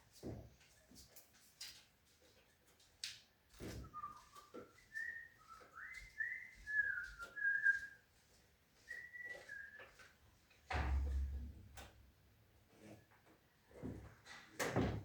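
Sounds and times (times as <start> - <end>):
person whistling a tune: 3.8 - 8.0, 8.9 - 10.0.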